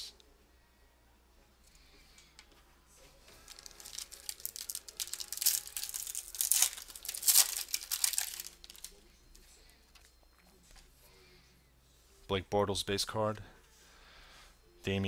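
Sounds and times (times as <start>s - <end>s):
wrapper crinkling: 3.3s - 9.0s
wrapper ripping: 3.4s - 9.0s.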